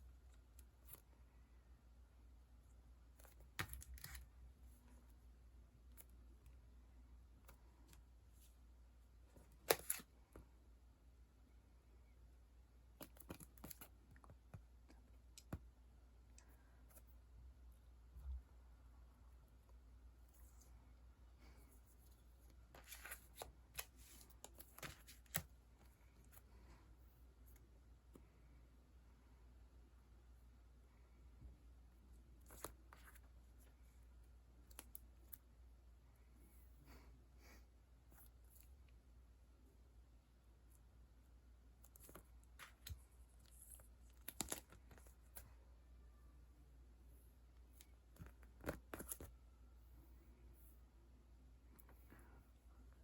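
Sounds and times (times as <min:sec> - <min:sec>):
faint low hum: 0:00.0 - 0:53.0
sticker sheets rustling: 0:21.4 - 0:26.7.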